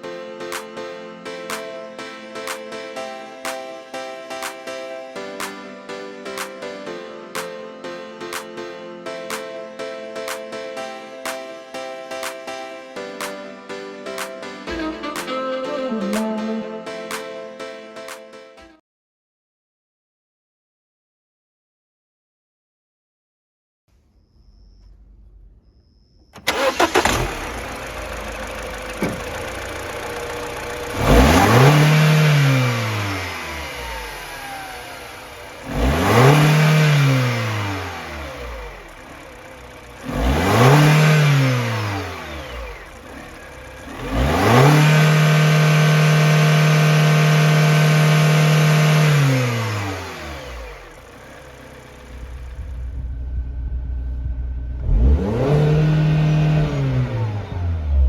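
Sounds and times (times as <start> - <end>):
car engine idling: 24.0 - 58.0
car engine revving: 24.0 - 58.0
car engine starting: 24.0 - 58.0.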